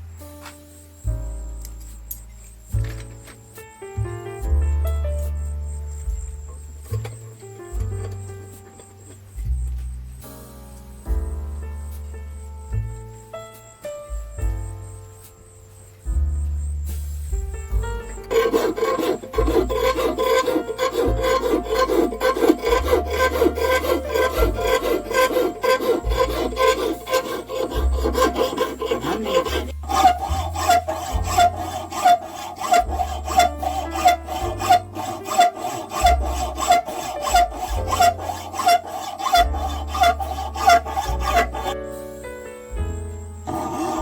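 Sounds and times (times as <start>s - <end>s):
hand file rasping: 17.8s - 41.8s, 43.5s - 44.0s.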